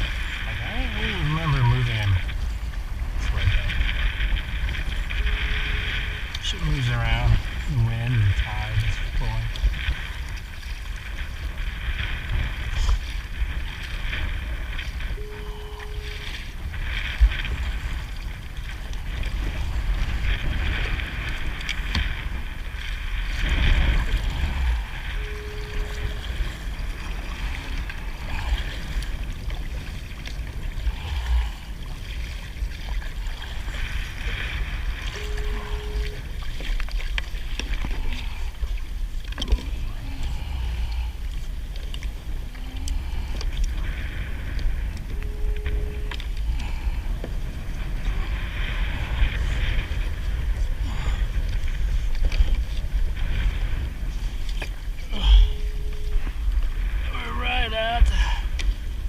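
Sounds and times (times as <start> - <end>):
water around a kayak: 0.0 - 59.0
wind buffeting microphone: 0.0 - 59.0
short electronic beep: 15.2 - 16.3, 25.2 - 26.2, 35.1 - 36.2, 45.1 - 46.2, 55.2 - 56.4.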